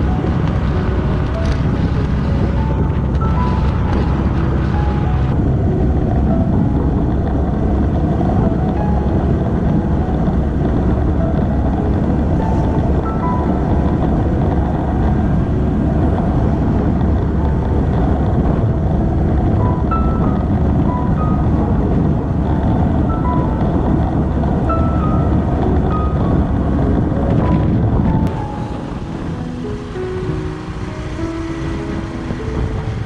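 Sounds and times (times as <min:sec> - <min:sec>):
soft background music: 0:00.0 - 0:33.0
wind and road noise: 0:00.0 - 0:33.0.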